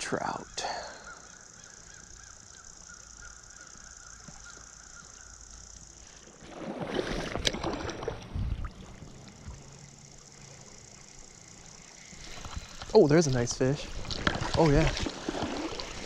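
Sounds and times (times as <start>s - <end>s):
river water splashing: 6.2s - 16.0s.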